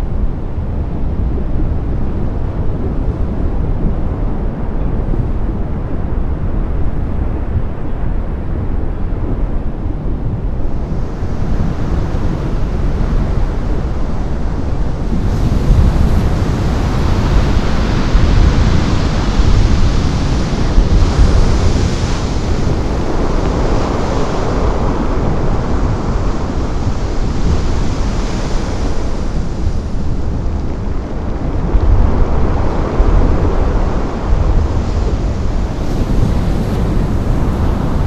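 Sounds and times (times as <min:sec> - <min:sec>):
wind buffeting microphone: 0:00.0 - 0:38.0
heavy surf waves breaking: 0:10.6 - 0:38.0.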